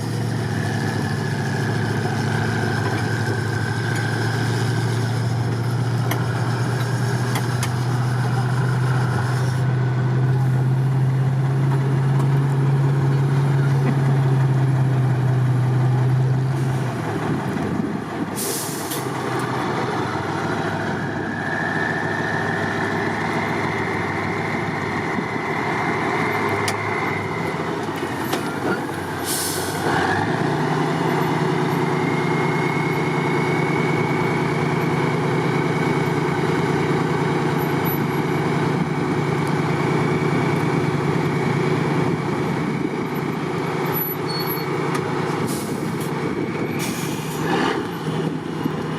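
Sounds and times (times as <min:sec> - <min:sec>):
truck diesel engine whining: 0:00.0 - 0:48.9
air release hiss: 0:18.4 - 0:19.0, 0:29.2 - 0:29.8.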